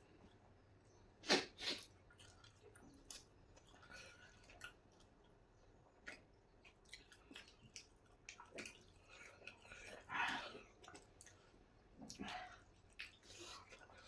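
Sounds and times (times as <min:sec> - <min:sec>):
person chewing: 0:12.0 - 0:14.0.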